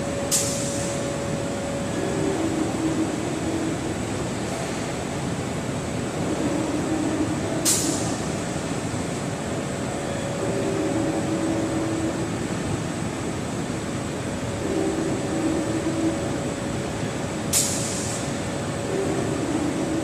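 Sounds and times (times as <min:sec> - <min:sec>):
screen washout machine humming: 0:00.0 - 0:20.0
short sharp air hiss: 0:17.5 - 0:18.3.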